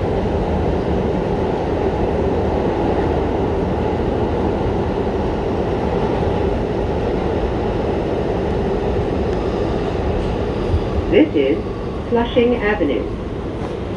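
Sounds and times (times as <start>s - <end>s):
subway train wheels rumbling: 0.0s - 13.9s.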